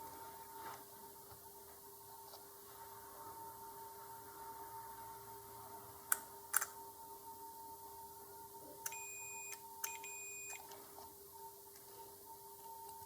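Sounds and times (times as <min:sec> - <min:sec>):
multimeter beeps: 0:08.8 - 0:10.7.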